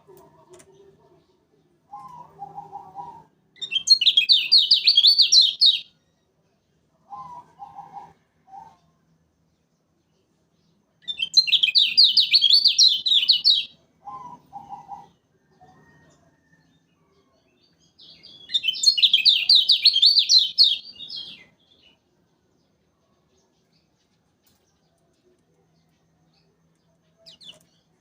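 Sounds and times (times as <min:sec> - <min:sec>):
bird singing chattering phrases: 0:00.0 - 0:05.9, 0:11.0 - 0:15.2, 0:18.0 - 0:21.9, 0:27.1 - 0:28.0
quiet low bird notes: 0:00.0 - 0:28.0.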